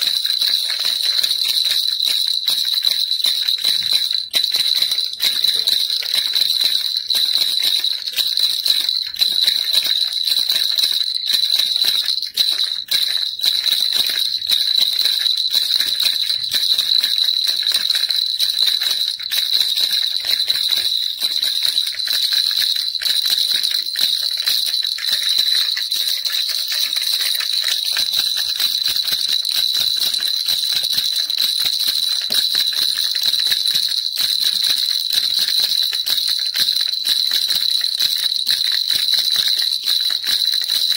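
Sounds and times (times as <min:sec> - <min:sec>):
baby rattle shaking: 0:00.0 - 0:40.9.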